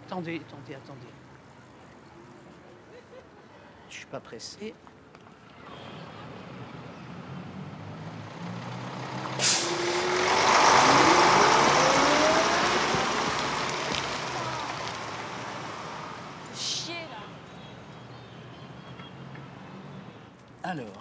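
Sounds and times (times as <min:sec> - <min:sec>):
truck driving by: 0:05.5 - 0:20.2
air brake hiss: 0:09.3 - 0:10.5.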